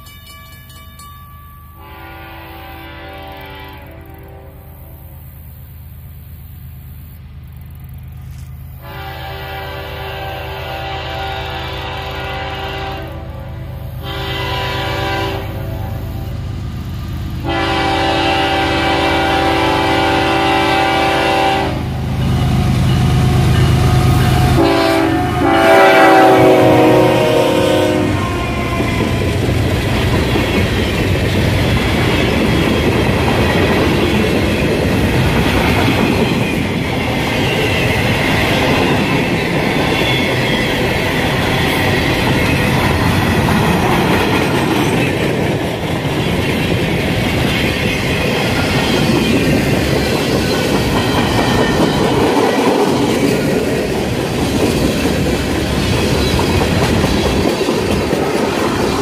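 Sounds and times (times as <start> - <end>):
freight train wheels rumbling: 0.0 - 59.0
clickety-clack over rail joints: 28.1 - 59.0.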